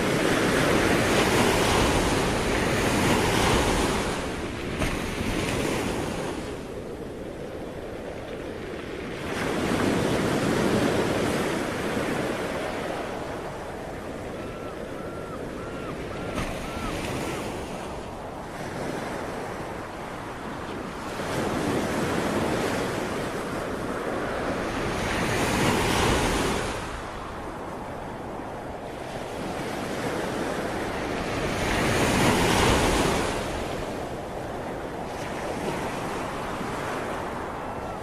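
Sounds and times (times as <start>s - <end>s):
waves breaking on shore: 0.0s - 38.0s.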